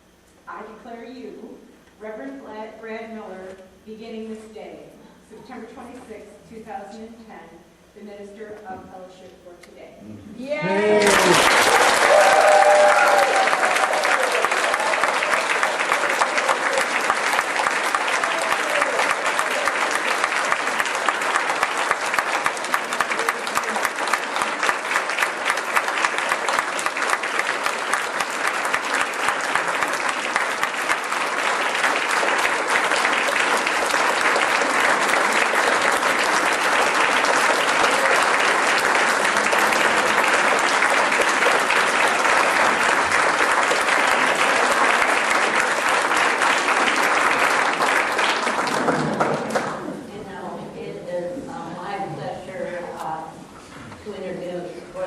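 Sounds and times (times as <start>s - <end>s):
congregation applauding: 10.6s - 50.1s.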